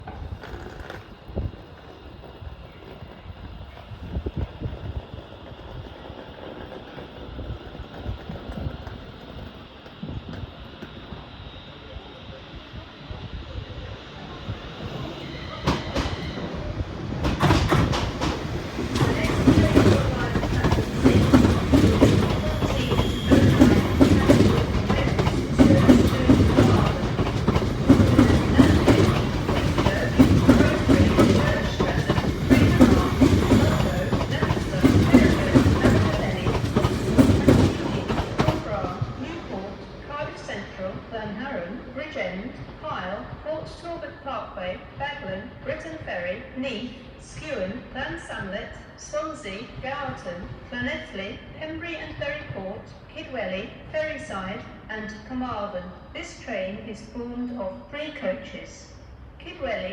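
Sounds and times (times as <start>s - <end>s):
train wheels clacking over rail joints: 0.0s - 3.2s, 17.1s - 39.6s
low train rumble: 0.0s - 57.9s.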